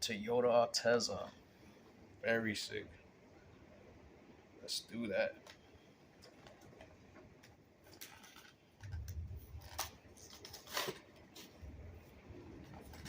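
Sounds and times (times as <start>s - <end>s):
plastic blister crackling: 5.4s - 13.0s.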